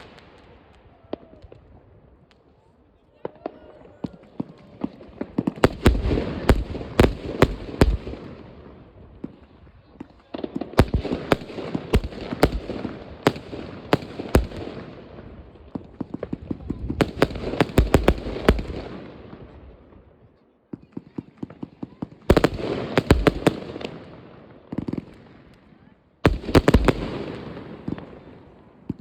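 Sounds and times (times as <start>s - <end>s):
fireworks bangs and crackling: 0.0s - 29.0s.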